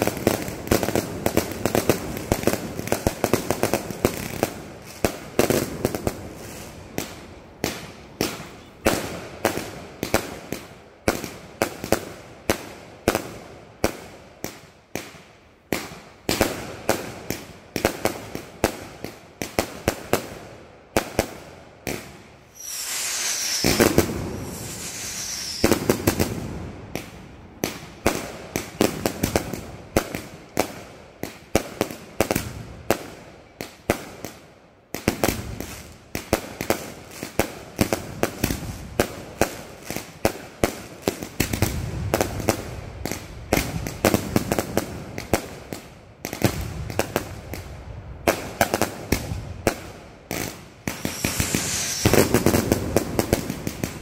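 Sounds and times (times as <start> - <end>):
fireworks bangs: 0.0 - 20.4, 21.0 - 33.2, 35.0 - 54.0
continuous hissing: 0.0 - 33.3, 46.6 - 54.0
falling whistles: 22.5 - 26.2, 51.0 - 52.5.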